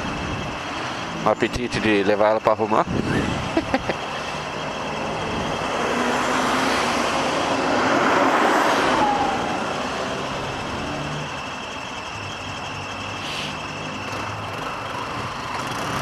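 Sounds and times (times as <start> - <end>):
motorcycle engine: 0.0 - 16.0
road traffic: 0.0 - 16.0
wind noise: 2.8 - 4.0.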